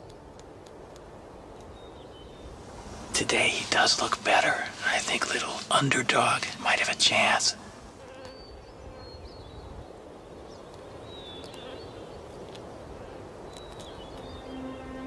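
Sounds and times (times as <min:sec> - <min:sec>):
steady low hiss: 0:00.0 - 0:15.0
faint high bird chirps: 0:13.5 - 0:15.0
soft held music notes: 0:14.0 - 0:15.0.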